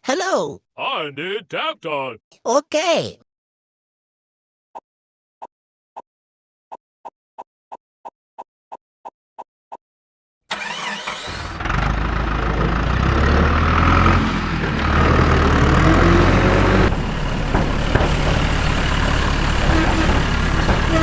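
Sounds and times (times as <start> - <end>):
tractor engine running: 10.5 - 21.0.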